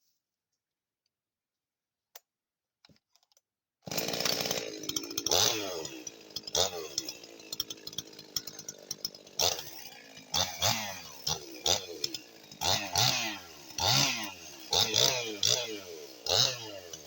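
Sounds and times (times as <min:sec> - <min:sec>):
chainsaw idling and revving: 0:03.9 - 0:17.0.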